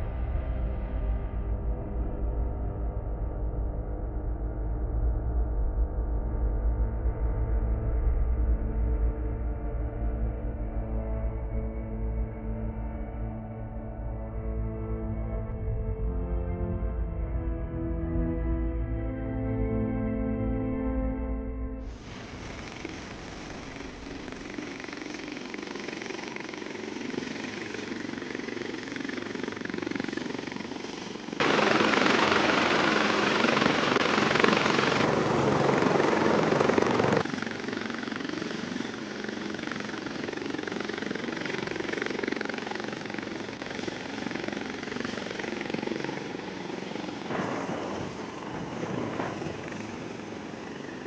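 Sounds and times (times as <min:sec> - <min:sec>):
aircraft engine roar: 0:00.0 - 0:51.0.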